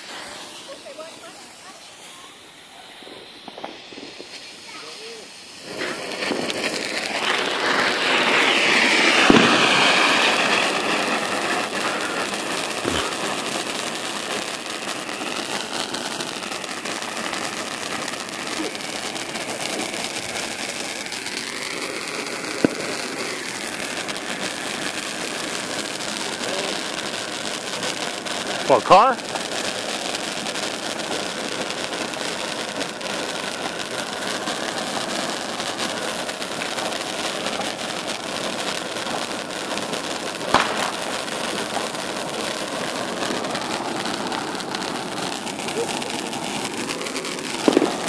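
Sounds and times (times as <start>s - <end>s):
firework rushing hiss: 0.0s - 48.0s
sharp pops: 3.4s - 4.8s, 40.5s - 41.2s, 47.6s - 48.0s.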